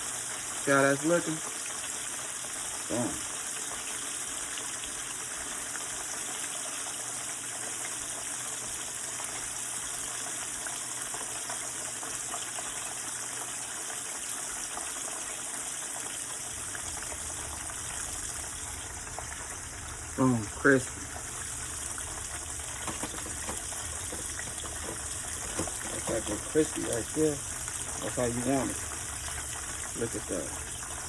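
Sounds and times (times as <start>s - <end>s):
chicken deep-frying in oil: 0.0s - 31.0s
oil crackling: 14.4s - 31.0s.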